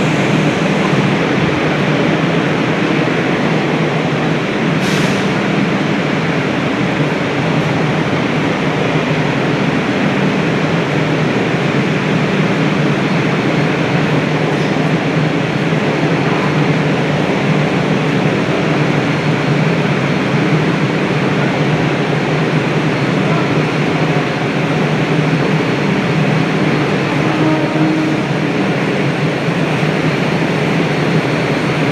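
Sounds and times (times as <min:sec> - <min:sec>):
train wheels on rails: 0:00.0 - 0:31.9.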